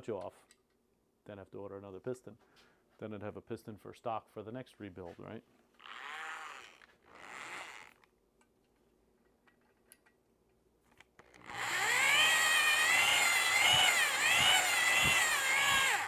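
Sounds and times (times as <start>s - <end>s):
electric drill whining: 5.8s - 8.0s, 11.2s - 16.0s.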